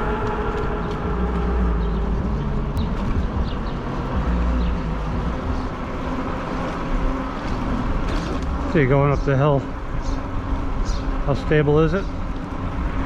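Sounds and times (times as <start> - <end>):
wind on microphone: 0.0 - 4.5
tire hum on road: 0.0 - 13.0.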